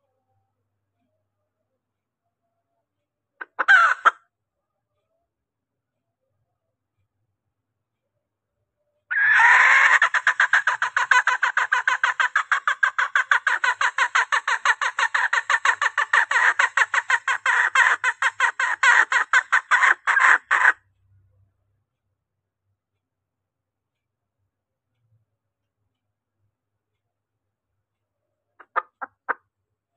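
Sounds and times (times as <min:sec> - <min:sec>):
hen clucking rapidly: 0:03.4 - 0:04.2, 0:09.1 - 0:20.8, 0:28.6 - 0:29.4.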